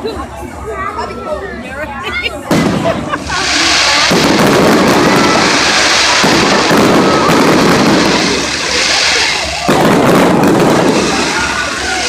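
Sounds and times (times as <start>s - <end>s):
fireworks crackling: 2.5s - 12.0s
fireworks shells bursting: 2.5s - 12.0s.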